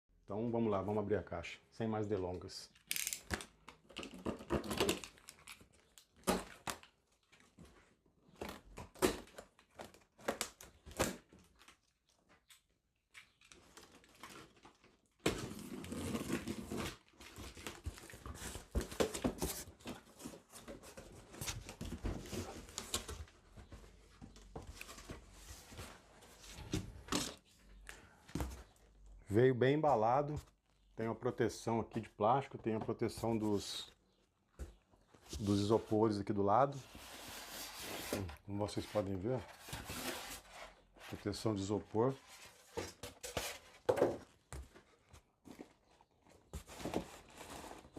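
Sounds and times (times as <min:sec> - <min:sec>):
cardboard tearing and scraping: 0:15.3 - 0:20.6, 0:46.6 - 0:47.9.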